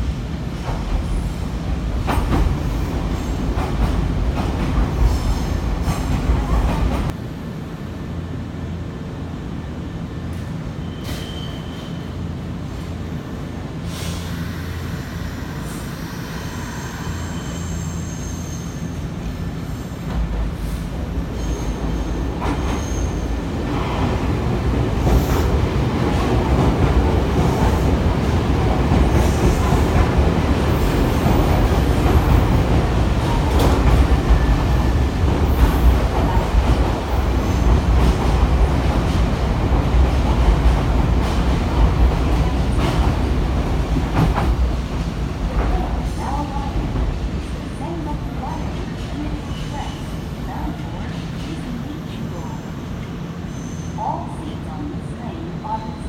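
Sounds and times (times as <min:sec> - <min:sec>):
train wheel squeals: 0:10.8 - 0:12.2, 0:14.0 - 0:20.1, 0:21.4 - 0:23.3, 0:53.5 - 0:54.1.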